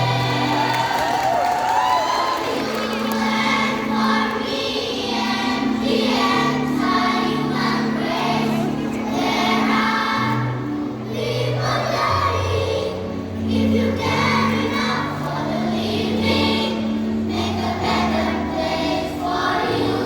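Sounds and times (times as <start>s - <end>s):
children's choir singing: 0.0s - 20.0s
held low accompaniment notes: 2.4s - 20.0s.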